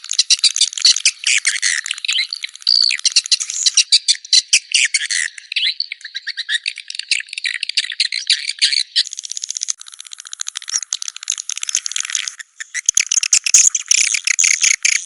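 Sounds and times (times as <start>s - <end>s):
swiftlet chirps and clicks: 0.1s - 3.9s, 9.0s - 15.0s.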